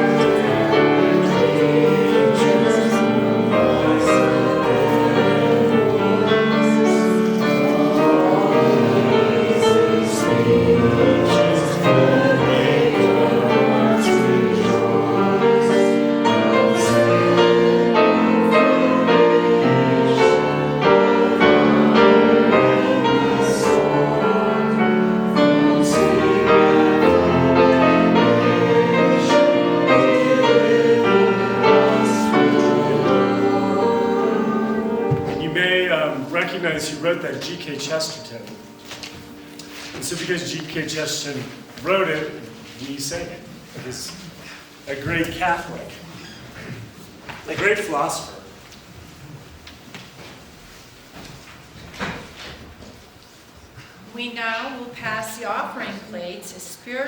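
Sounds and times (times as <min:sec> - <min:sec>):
congregation singing a hymn: 0:00.0 - 0:54.0.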